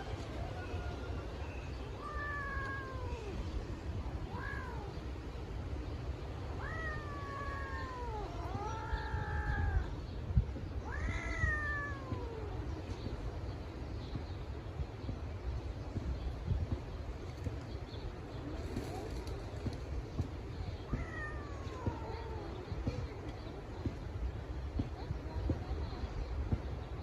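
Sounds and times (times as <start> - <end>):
cat meowing: 1.8 - 3.5, 4.3 - 5.0, 6.6 - 10.0, 10.8 - 12.7, 20.8 - 23.2.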